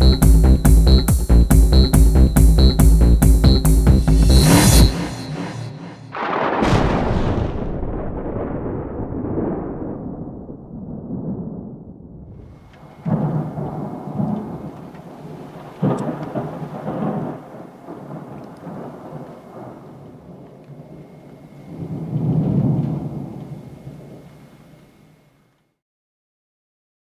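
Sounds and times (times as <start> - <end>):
thunder cracks and rumbling: 4.1 - 24.3
rain: 12.4 - 25.6.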